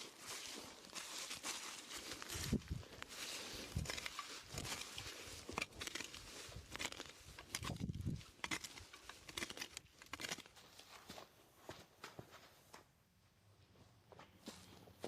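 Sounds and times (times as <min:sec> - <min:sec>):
dry leaves and twigs crackling: 0:00.0 - 0:11.0.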